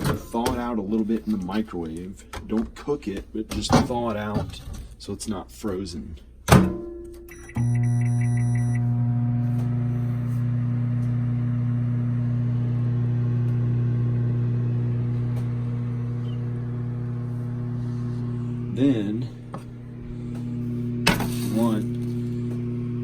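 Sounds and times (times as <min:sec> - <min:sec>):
microwave humming: 0:06.4 - 0:23.0
microwave beeps: 0:07.2 - 0:17.2.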